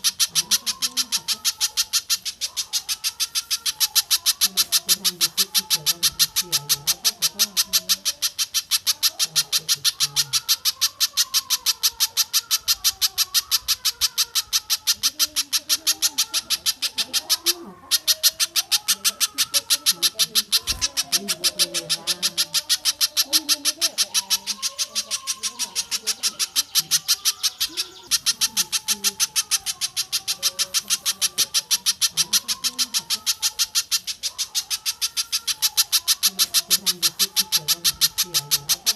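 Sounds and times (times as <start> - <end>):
sharp high-pitched bird calls: 0.0 - 38.9.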